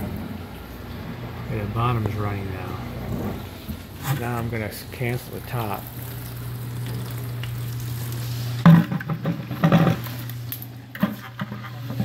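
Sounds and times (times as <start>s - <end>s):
dishwasher motor hum: 0.0s - 12.0s
water spray hissing: 3.8s - 8.7s.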